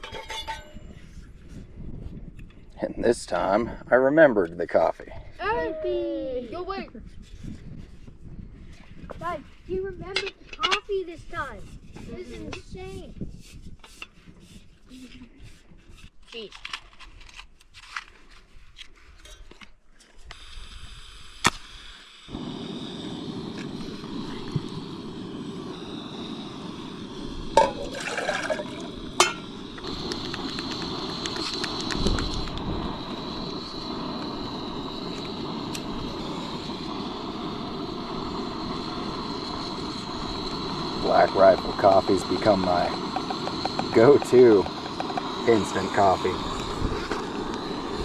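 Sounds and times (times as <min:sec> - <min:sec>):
gas burner rushing: 0:20.3 - 0:48.0
gas hissing from valve: 0:20.3 - 0:48.0.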